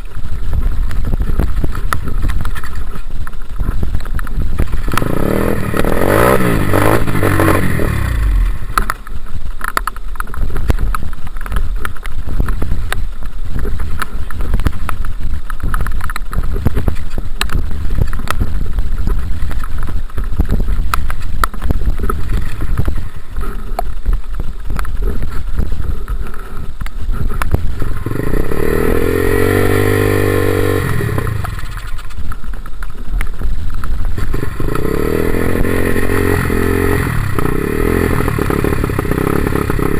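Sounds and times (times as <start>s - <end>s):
rough rumble: 0.0s - 39.9s
dirt bike engine revving: 4.7s - 8.9s, 27.7s - 32.1s, 34.2s - 39.9s.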